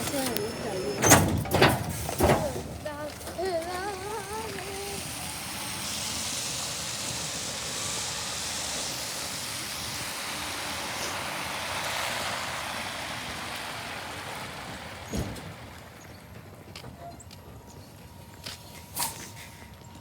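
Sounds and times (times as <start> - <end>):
garbage truck passing: 0.0 - 20.0.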